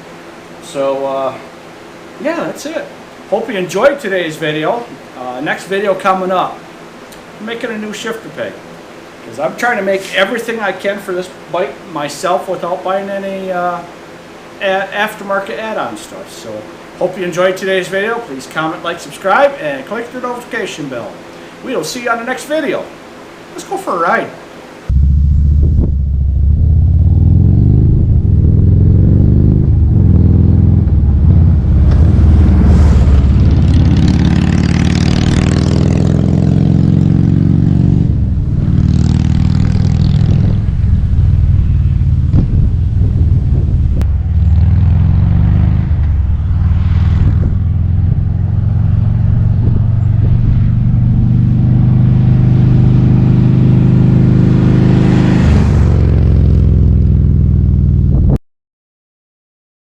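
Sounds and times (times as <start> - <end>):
motorcycle engine revving: 24.9 - 58.4.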